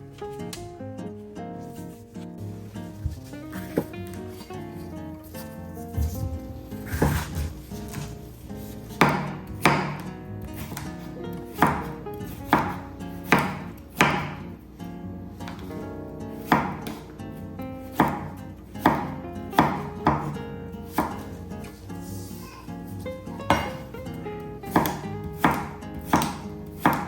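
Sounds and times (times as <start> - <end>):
knife chopping on cutting board: 5.4 - 14.5, 15.4 - 15.8, 16.4 - 17.1, 17.9 - 21.8, 23.5 - 23.9, 24.7 - 27.0.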